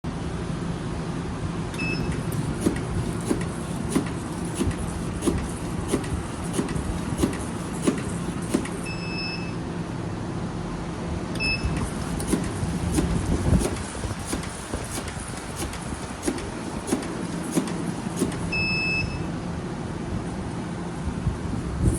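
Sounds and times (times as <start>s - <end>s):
machine motor hum: 1.7s - 9.7s, 11.4s - 19.6s
short electronic beeps: 1.8s - 2.2s, 8.8s - 9.6s, 11.4s - 11.8s, 18.5s - 19.3s
cutting machine strokes: 1.8s - 9.2s, 11.4s - 19.3s.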